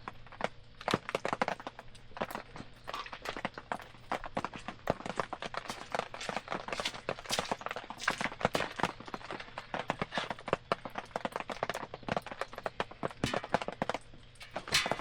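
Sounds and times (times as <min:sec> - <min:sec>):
campfire crackling: 0:00.1 - 0:15.0.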